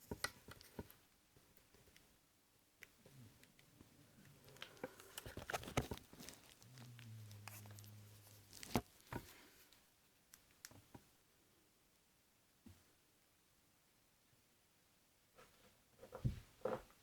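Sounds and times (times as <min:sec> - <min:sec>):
smartphone being handled: 0:04.6 - 0:06.6.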